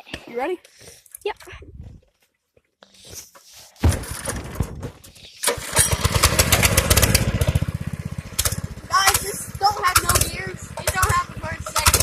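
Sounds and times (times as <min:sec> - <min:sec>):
mini bike engine starting: 0:03.9 - 0:12.0.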